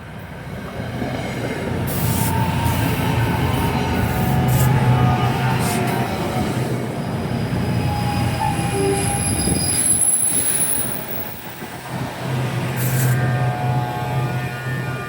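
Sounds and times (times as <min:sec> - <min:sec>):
train wheels on track: 0:00.0 - 0:14.4
high wheel squeal: 0:07.6 - 0:11.6.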